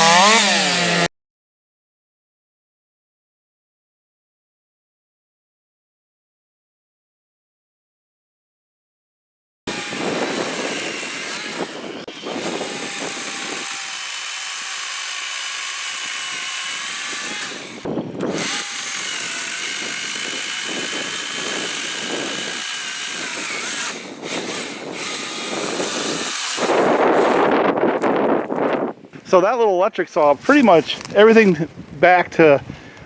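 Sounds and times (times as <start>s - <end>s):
chainsaw cutting wood: 0.0s - 1.1s, 9.7s - 28.9s.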